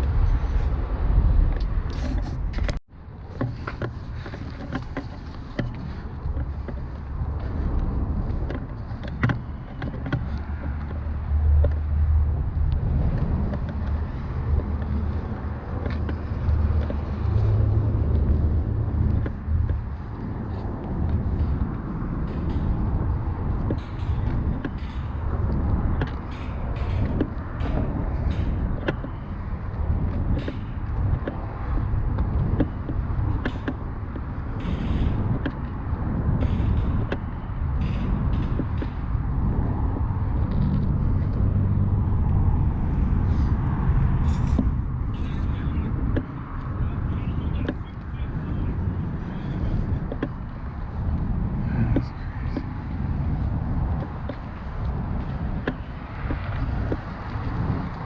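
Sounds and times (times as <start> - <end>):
vehicle engine rumbling: 0.0 - 58.0
small knocks and rattles: 1.6 - 41.0.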